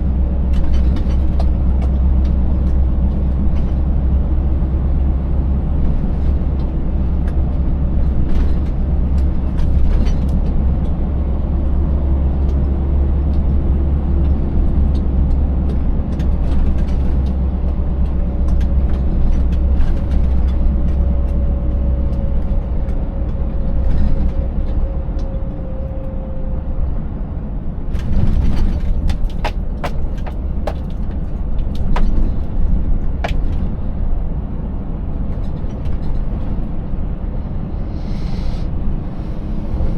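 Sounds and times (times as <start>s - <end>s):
knocks and rattles: 28.9s - 32.2s, 33.2s - 33.5s.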